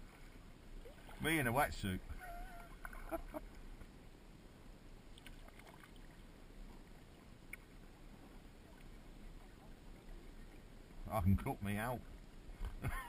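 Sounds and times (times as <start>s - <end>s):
faint water around kayak: 0.0s - 13.0s
small splashes: 0.8s - 1.4s, 5.1s - 6.2s.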